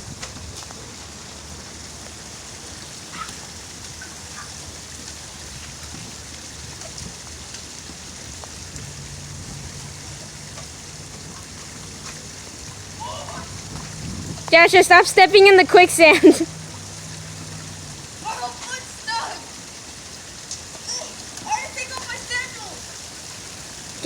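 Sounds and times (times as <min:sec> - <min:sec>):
running water hiss: 0:00.0 - 0:24.0.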